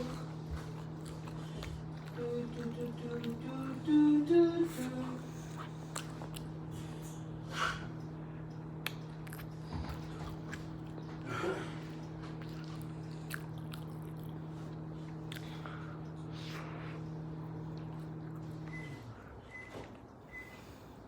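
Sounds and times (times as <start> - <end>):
person chewing: 0.0 - 4.0, 4.8 - 18.8
low electrical hum: 0.0 - 21.0.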